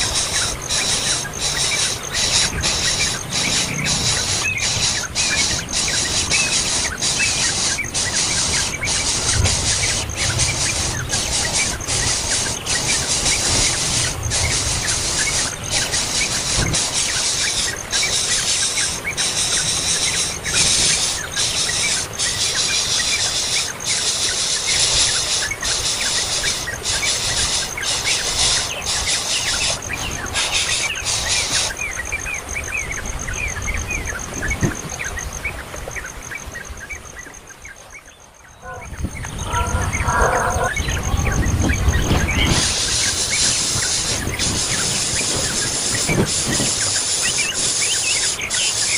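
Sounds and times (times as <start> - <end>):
shrill hissing chorus: 0.0 - 32.0, 38.6 - 48.9
birds chirping: 0.0 - 48.9
faint pulsing high tone: 38.4 - 41.4.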